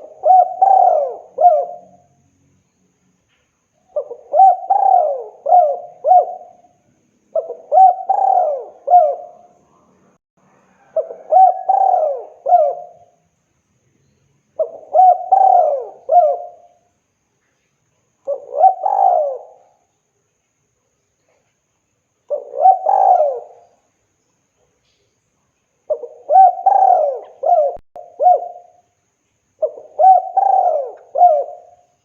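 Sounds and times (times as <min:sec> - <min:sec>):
dove cooing: 0:00.0 - 0:02.1, 0:03.9 - 0:09.6, 0:10.8 - 0:13.2, 0:14.6 - 0:16.8, 0:18.3 - 0:19.8, 0:22.3 - 0:23.8, 0:25.9 - 0:28.8, 0:29.6 - 0:31.9.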